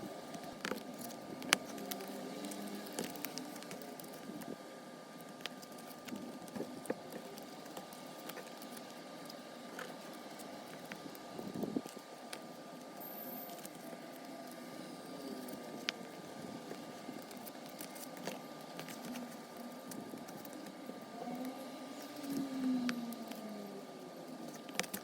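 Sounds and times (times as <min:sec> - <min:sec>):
items being handled rustling: 0:00.0 - 0:25.0.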